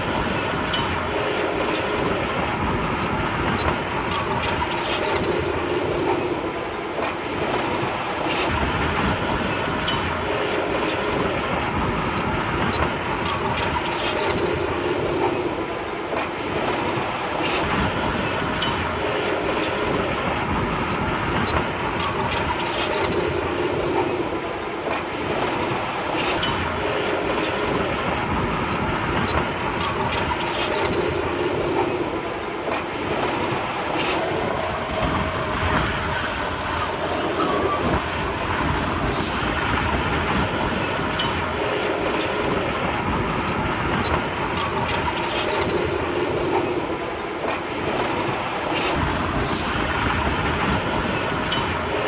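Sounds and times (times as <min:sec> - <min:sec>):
clanks of steel tracks and stone: 0:00.0 - 0:52.0
bulldozer diesel engine running: 0:33.0 - 0:46.4.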